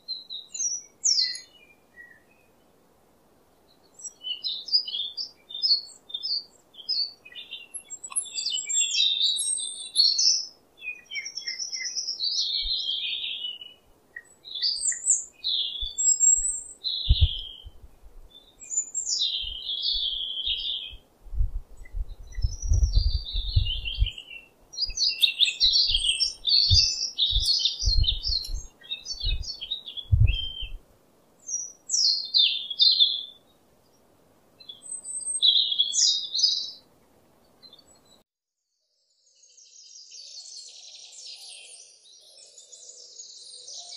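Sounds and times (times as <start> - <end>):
small birds chirping: 0.0 - 2.8, 3.4 - 30.8, 31.4 - 38.2, 39.2 - 43.9
dull low thumps: 17.1 - 18.3, 21.3 - 24.1, 26.6 - 29.5, 30.1 - 30.8.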